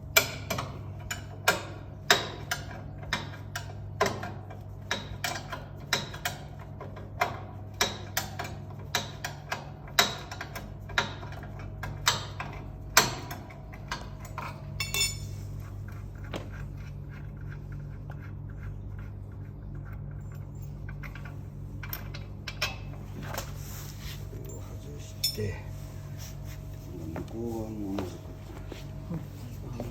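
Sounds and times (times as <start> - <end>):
steady low hum: 0.0 - 29.9
ringing metal clink: 14.8 - 15.3, 24.5 - 25.6.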